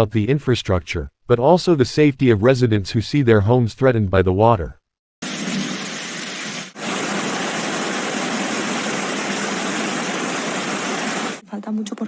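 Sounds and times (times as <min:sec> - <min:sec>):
floodwater rushing: 0:05.2 - 0:11.4.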